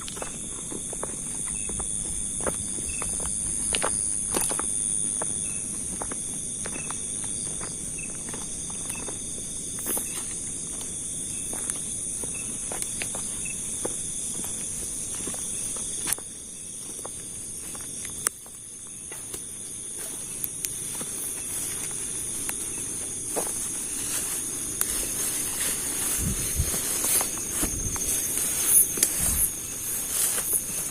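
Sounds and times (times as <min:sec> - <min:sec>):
crickets trilling: 0:00.0 - 0:30.9
footsteps in undergrowth: 0:00.0 - 0:30.9
rustling and snapping undergrowth: 0:17.8 - 0:30.9.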